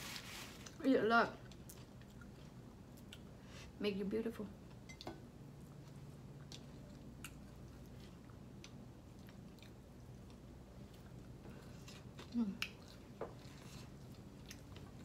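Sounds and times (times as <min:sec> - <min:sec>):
low background hum: 0:00.0 - 0:15.0
person chewing food: 0:01.4 - 0:03.4, 0:05.5 - 0:15.0.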